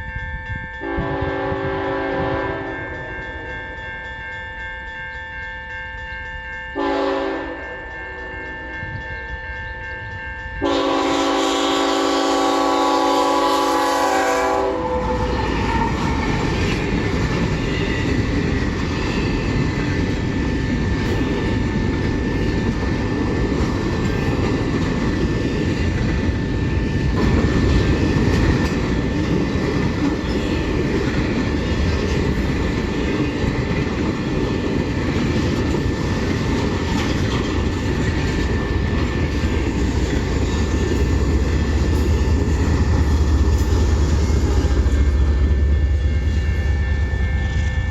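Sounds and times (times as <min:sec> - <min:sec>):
locomotive horn blasts: 0:00.8 - 0:03.1, 0:06.8 - 0:08.8, 0:10.6 - 0:16.1
train wheels clattering over rails: 0:14.9 - 0:45.9.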